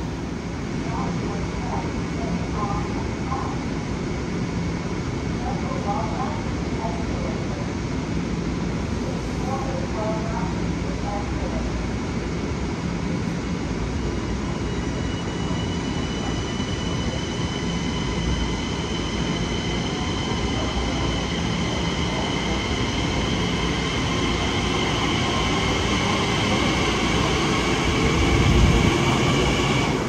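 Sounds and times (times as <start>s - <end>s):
electric train rumble: 12.3s - 30.0s
high-pitched train whine: 13.6s - 30.0s.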